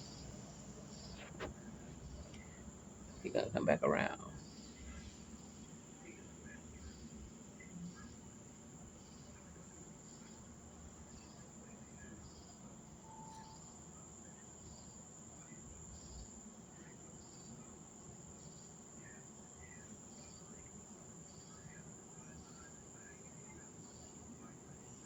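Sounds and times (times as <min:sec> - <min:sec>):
crickets trilling: 0:00.0 - 0:25.0
insect short chirps: 0:13.0 - 0:13.8.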